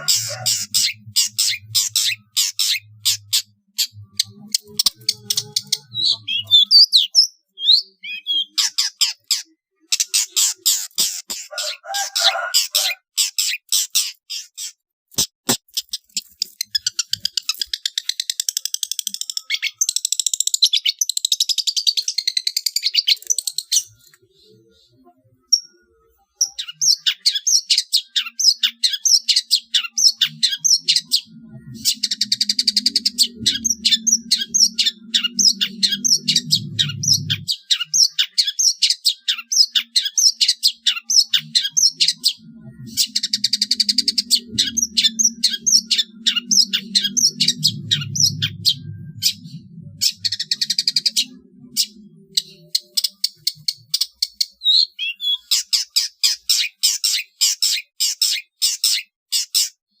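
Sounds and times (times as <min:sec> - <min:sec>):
harsh buzzy bird calls: 0:00.0 - 0:20.0
faint low hum: 0:30.4 - 0:37.6, 0:41.5 - 0:53.8.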